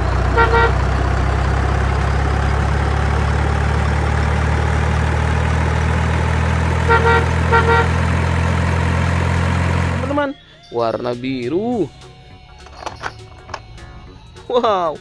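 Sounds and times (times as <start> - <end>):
truck engine idling: 0.0 - 10.5.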